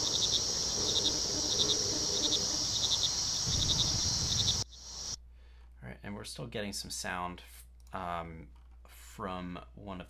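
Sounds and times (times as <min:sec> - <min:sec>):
crickets chirping: 0:00.0 - 0:05.2
frogs calling: 0:00.0 - 0:05.2
high insect hiss: 0:00.0 - 0:05.2.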